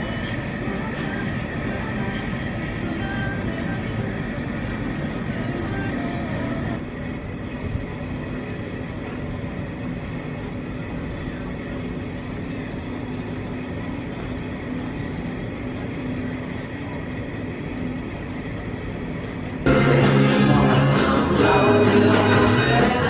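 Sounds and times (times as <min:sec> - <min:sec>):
faint hum: 0:00.0 - 0:23.0.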